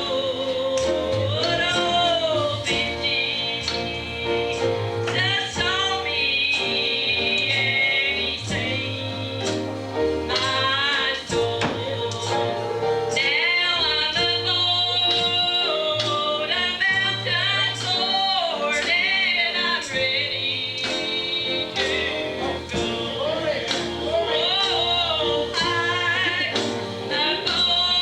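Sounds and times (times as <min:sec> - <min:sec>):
bass notes: 0:00.0 - 0:18.2, 0:20.0 - 0:28.0
lead voice singing gospel: 0:00.0 - 0:28.0
drum beat: 0:10.4 - 0:12.4, 0:21.8 - 0:28.0.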